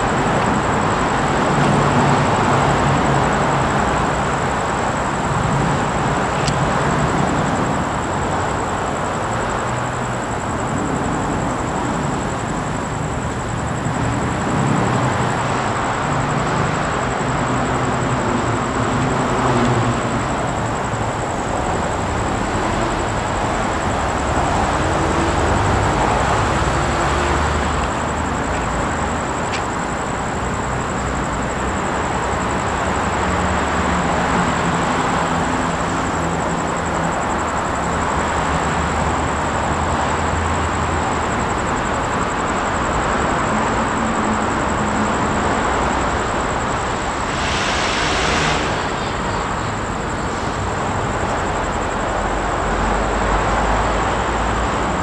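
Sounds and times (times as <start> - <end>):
train rumbling on rails: 0.0 - 55.0
brief high hiss: 47.2 - 49.3.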